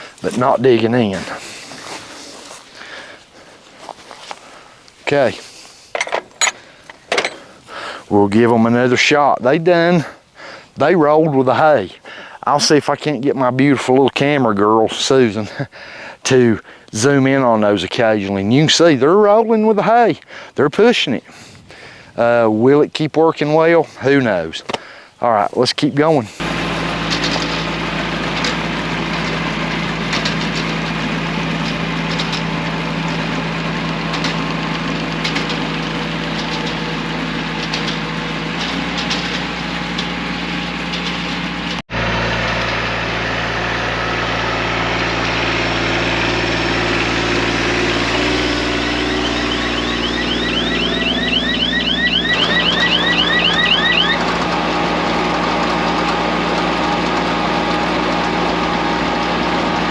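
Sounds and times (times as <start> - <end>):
diesel tractor engine running: 0.0 - 9.2, 26.2 - 59.9
rapid high chirps: 48.9 - 54.2.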